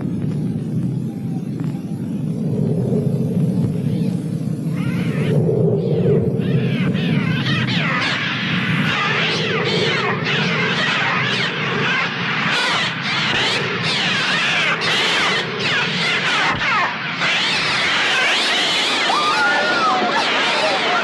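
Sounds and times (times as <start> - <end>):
flock of birds screeching: 3.8 - 21.0.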